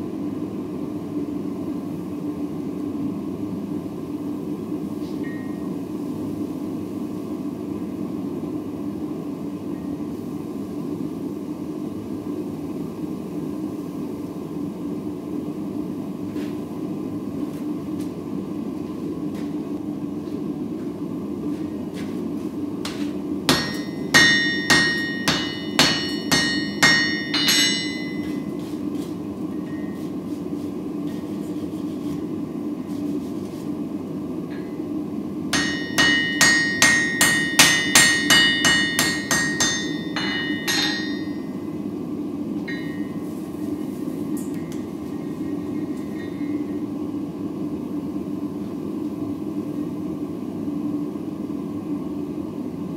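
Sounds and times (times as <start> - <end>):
low background rush: 14.3 - 48.5
hammer striking steel on anvil: 22.9 - 28.8, 35.6 - 41.6, 42.6 - 43.2.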